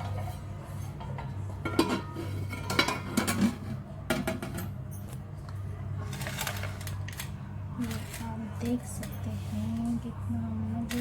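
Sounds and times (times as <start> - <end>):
spoon scraping dishes: 0.0 - 3.8.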